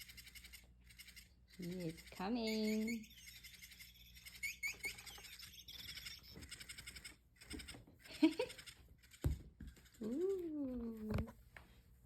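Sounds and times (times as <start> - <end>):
low squeak: 2.1 - 7.1
electronic bird chirps: 2.2 - 7.2.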